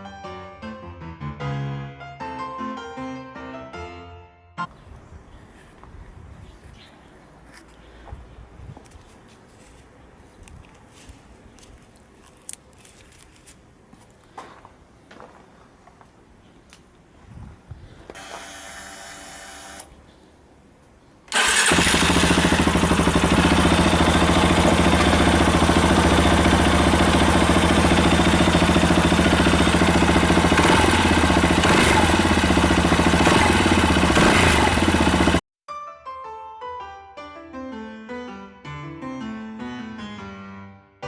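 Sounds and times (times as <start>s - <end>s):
keyboard music: 0.0s - 4.7s, 35.7s - 41.0s
motorcycle engine idling: 21.4s - 35.4s.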